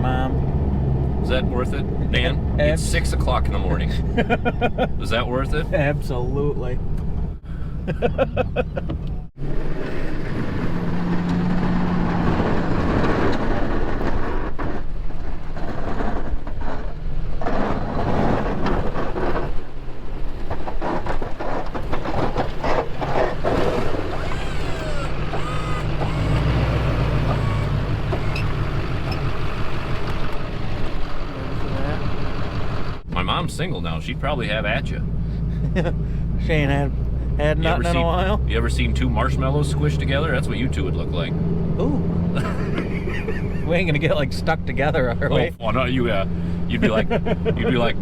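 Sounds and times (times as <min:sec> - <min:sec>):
truck engine running: 0:22.8 - 0:48.0.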